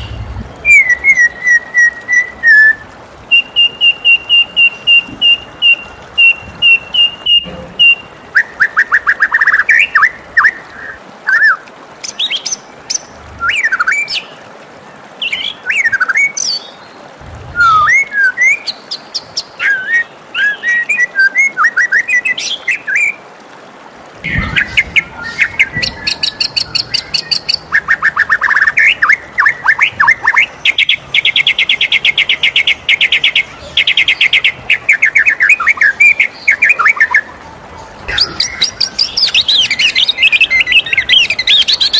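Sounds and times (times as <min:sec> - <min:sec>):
bird singing whistled phrases: 0:00.0 - 0:10.6, 0:17.5 - 0:18.8, 0:19.6 - 0:23.2, 0:24.3 - 0:41.9.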